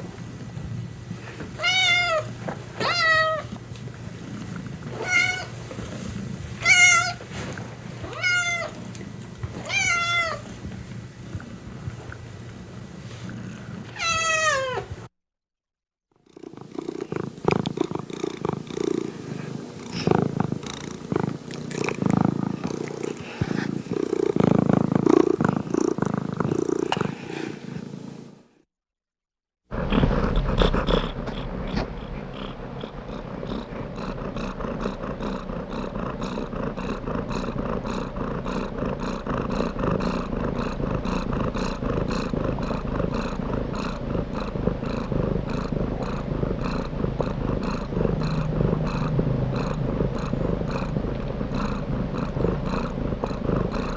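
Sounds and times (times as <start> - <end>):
cat purring: 0.0 - 15.0, 16.2 - 28.3, 29.7 - 53.9
cat meowing: 1.6 - 3.5, 5.0 - 5.6, 6.6 - 7.2, 8.1 - 8.8, 9.6 - 10.4, 14.0 - 14.9.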